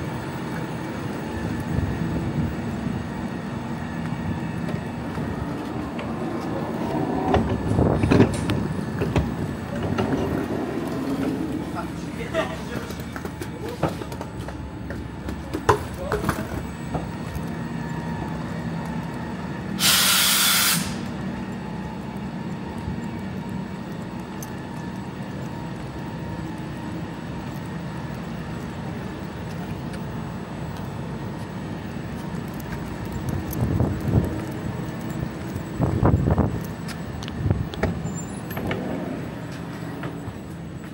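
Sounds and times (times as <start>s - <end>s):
standing train humming: 0.0s - 40.9s
compressed air hiss: 19.8s - 21.1s.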